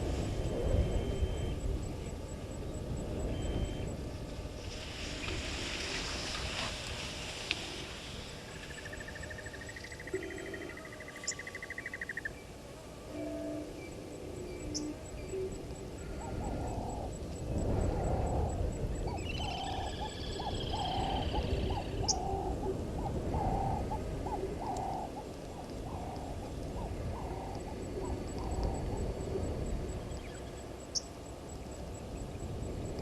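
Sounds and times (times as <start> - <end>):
low background rumble: 0.0 - 11.6
bird hooting: 0.4 - 2.0, 8.6 - 12.4, 13.1 - 17.2, 17.8 - 31.0.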